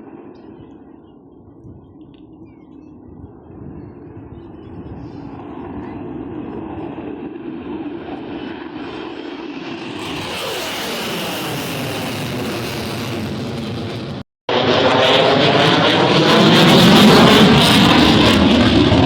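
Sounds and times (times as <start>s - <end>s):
airplane engine: 0.0s - 19.0s.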